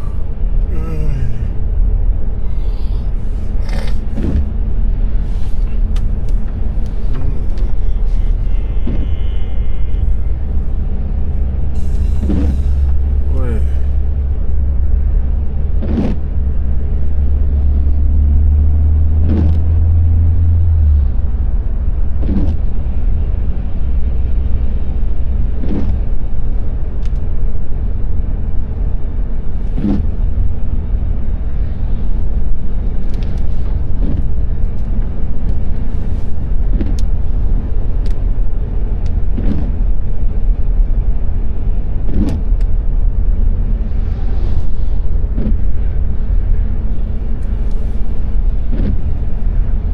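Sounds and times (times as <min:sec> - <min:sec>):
car road and engine rumble: 0:00.0 - 0:49.9
windshield wipers swishing: 0:03.6 - 0:04.6, 0:11.8 - 0:14.0, 0:33.1 - 0:39.9, 0:42.1 - 0:42.6, 0:47.2 - 0:49.8.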